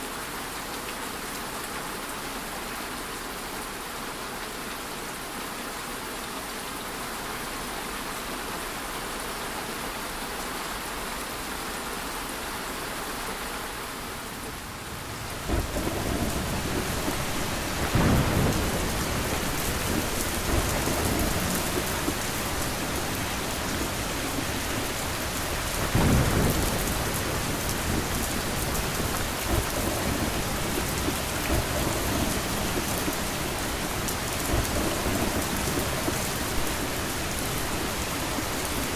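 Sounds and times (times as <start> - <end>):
steady rain: 0.0 - 38.9
low rolls of thunder: 14.8 - 38.9.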